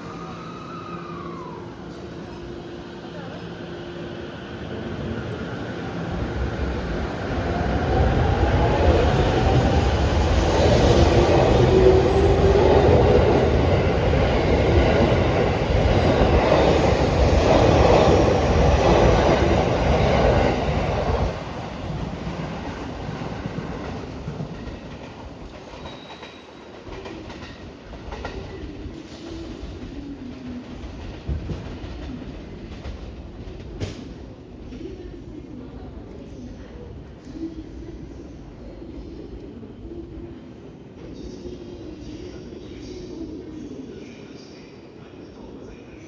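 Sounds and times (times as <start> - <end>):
train wheels rumbling on rails: 0.0 - 42.4.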